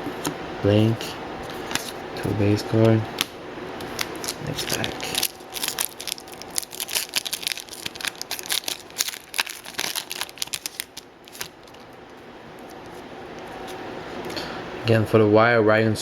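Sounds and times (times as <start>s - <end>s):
wrapper tearing and crinkling: 3.8s - 12.0s.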